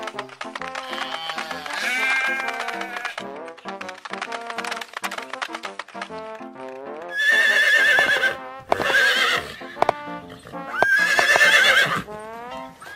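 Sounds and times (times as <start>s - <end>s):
hoof clops: 0.0s - 12.9s
light melodic background music: 0.0s - 12.9s
horse whinnying: 0.8s - 3.2s, 7.1s - 12.2s.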